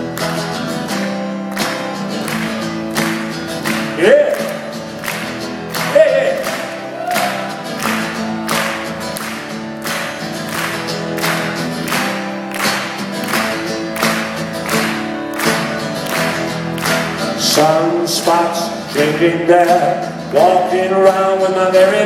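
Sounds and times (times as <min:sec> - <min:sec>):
guitar strummed rhythmically: 0:00.0 - 0:22.0
person singing yeah: 0:05.8 - 0:08.7.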